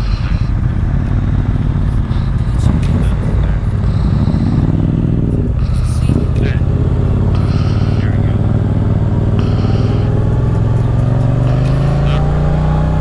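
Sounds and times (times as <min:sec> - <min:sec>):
motorcycle engine rumbling: 0:00.0 - 0:13.0.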